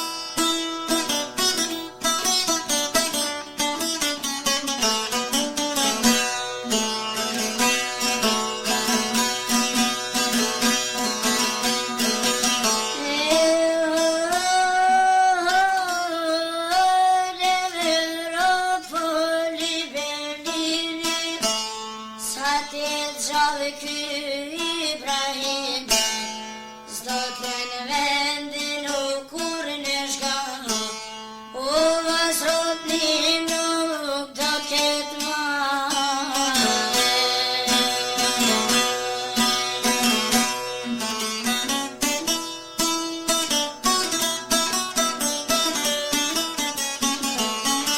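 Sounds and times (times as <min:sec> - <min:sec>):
plucked string instrument: 0:00.0 - 0:47.9
girl singing folk song: 0:10.2 - 0:42.4.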